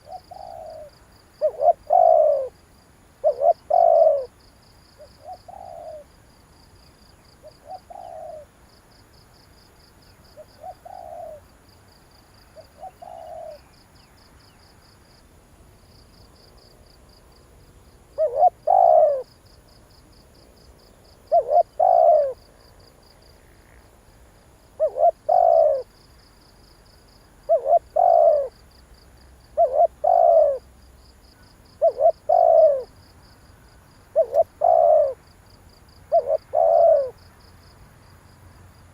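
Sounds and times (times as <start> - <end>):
dove cooing: 0.0 - 2.6, 3.2 - 4.4, 5.0 - 6.1, 7.4 - 8.5, 10.4 - 11.4, 12.6 - 13.7, 18.1 - 19.3, 21.2 - 22.5, 24.8 - 26.0, 27.4 - 28.6, 29.5 - 30.7, 31.8 - 33.0, 34.1 - 35.2, 36.1 - 37.2
faint high-pitched chirping: 12.2 - 15.2, 24.8 - 28.8.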